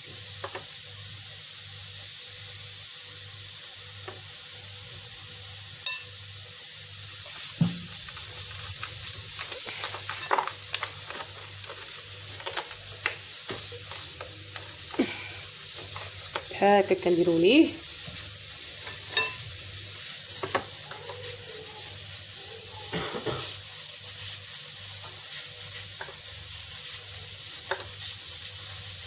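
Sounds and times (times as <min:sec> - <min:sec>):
cooking sizzling hiss: 0:00.0 - 0:29.0.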